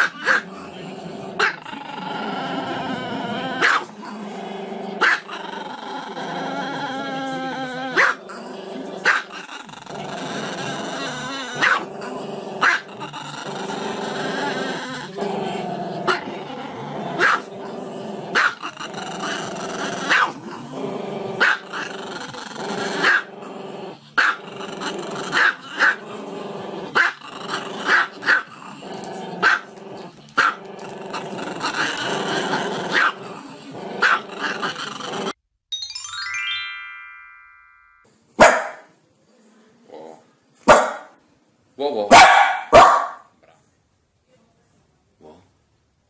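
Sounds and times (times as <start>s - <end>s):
dog growling: 0.0s - 35.4s, 39.8s - 40.3s
dog barking sharply: 38.4s - 38.9s, 40.7s - 41.1s, 42.1s - 43.3s.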